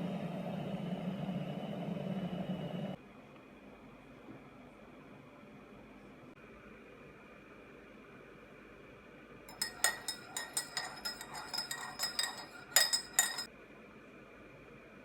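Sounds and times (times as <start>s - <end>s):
metal spoon clinking cup: 9.5s - 13.5s.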